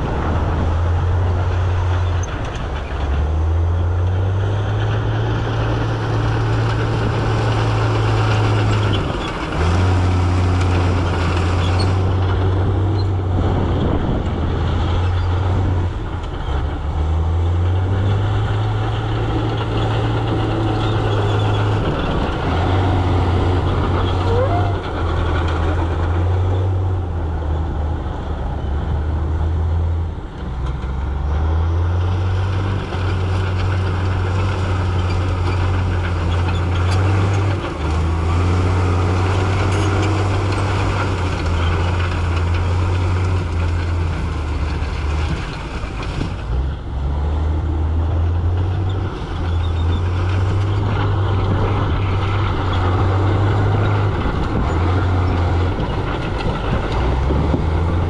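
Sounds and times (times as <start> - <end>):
heavy diesel engine droning: 0.0 - 58.0
rattling grinding noise: 0.0 - 58.0.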